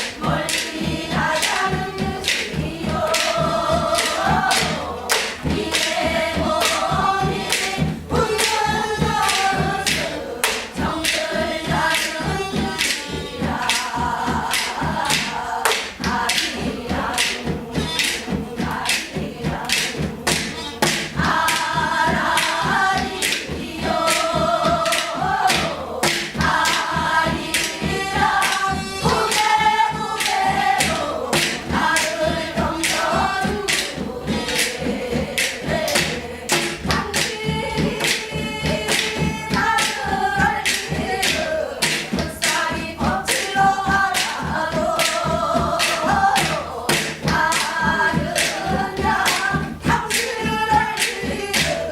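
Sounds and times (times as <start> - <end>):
drum strokes: 0.0 - 51.9
group singing folk song: 0.0 - 51.9.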